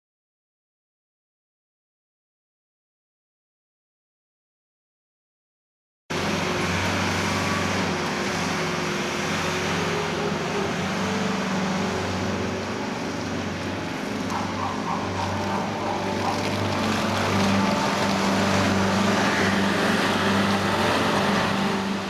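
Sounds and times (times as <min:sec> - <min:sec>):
loader engine running: 0:06.1 - 0:22.0.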